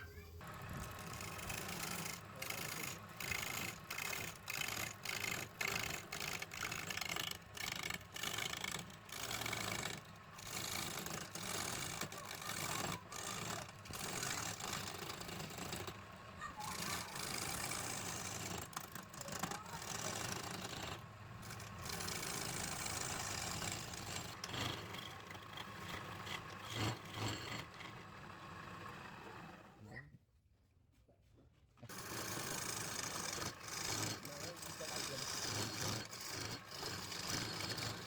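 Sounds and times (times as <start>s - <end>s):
woodworking tool rasping wood: 0.4s - 29.8s, 31.9s - 38.0s.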